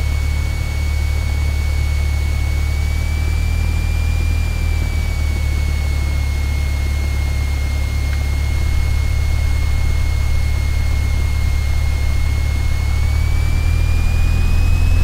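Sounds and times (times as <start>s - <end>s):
aircraft engine deep drone: 0.0s - 15.0s
high whine: 0.0s - 15.0s.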